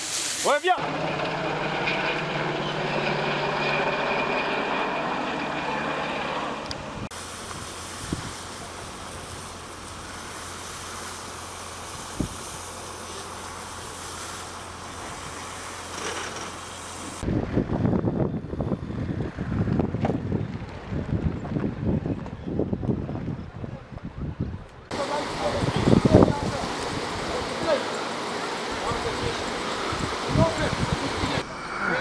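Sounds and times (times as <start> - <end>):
rushing noise with low hum: 5.9 - 31.8
engine humming: 24.9 - 32.0.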